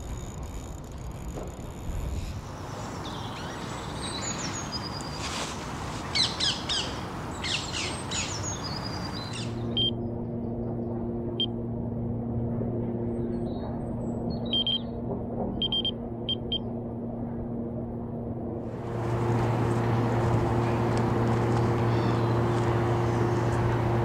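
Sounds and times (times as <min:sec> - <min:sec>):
low steady hum: 0:00.0 - 0:24.0
noisy background: 0:00.0 - 0:24.0
small birds chirping: 0:02.4 - 0:09.9, 0:20.4 - 0:23.7.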